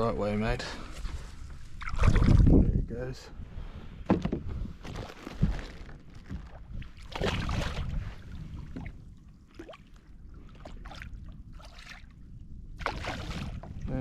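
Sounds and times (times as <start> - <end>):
water splashing beside a kayak: 1.5 - 2.6, 4.0 - 14.0.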